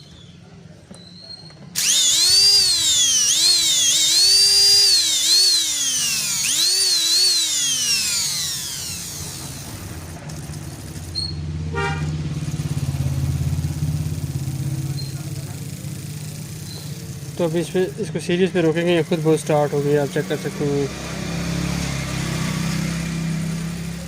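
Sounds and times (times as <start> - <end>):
juicer motor whining: 1.7 - 11.4, 12.0 - 24.0.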